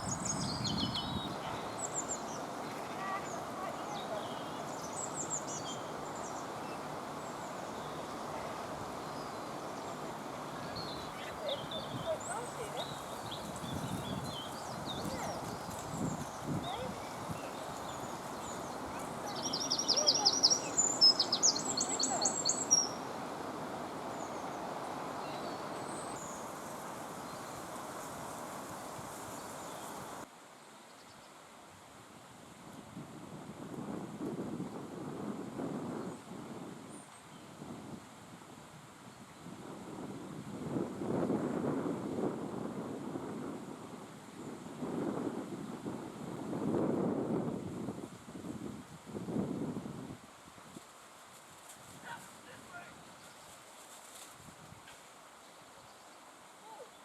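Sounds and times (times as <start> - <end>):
outdoor background noise: 0.0 - 57.0
faint high bird chirps: 10.6 - 23.0.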